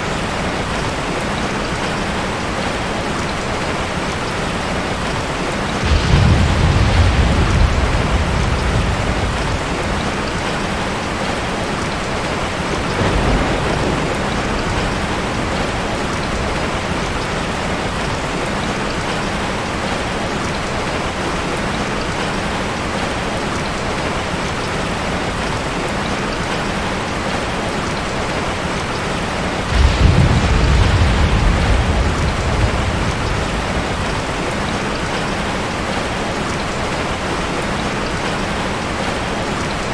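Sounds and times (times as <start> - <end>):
ocean surf washing: 3.6 - 19.6, 28.3 - 39.9
heavy waves breaking: 4.1 - 20.0, 28.4 - 38.2.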